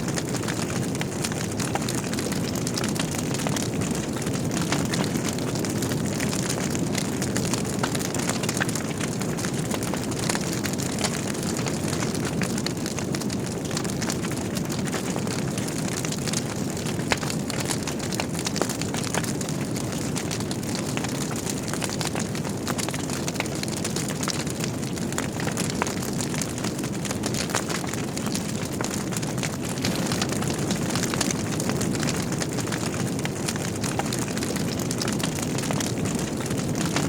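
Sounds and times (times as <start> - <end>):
fire crackling and popping: 0.0 - 37.0
fire flame rushing: 26.4 - 37.0.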